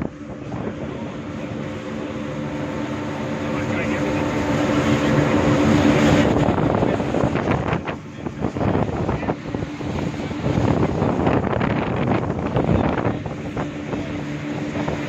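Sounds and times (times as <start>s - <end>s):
engine running: 0.0s - 15.0s
wind buffeting microphone: 0.0s - 15.0s.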